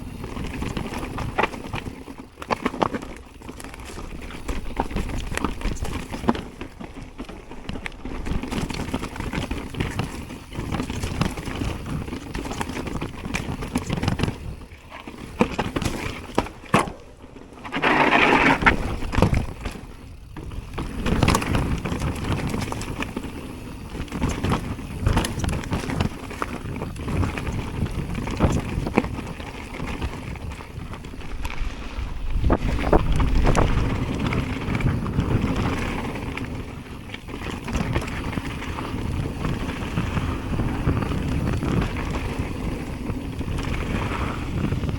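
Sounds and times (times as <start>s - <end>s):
tyres rolling on dirt: 0.0s - 44.9s
bike knocks and rattles: 0.1s - 44.9s
wind rushing over microphone: 30.4s - 36.7s.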